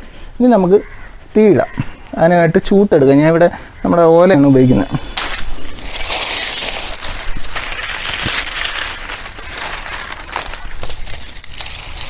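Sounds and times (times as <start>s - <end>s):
dry palm leaves crackling: 5.0s - 12.0s.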